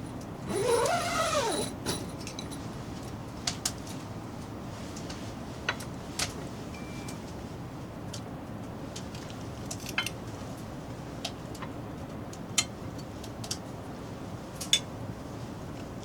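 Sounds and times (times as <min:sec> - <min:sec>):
low background hiss: 0:04.4 - 0:08.9.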